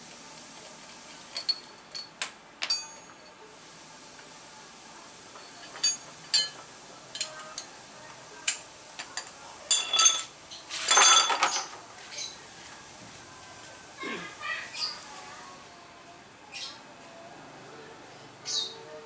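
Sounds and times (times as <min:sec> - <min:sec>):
metal parts clinking: 0:09.2 - 0:11.8.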